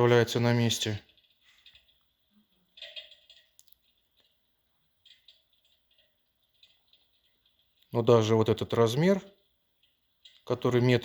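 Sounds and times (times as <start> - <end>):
faint clicks and rustles: 0.5 - 10.9.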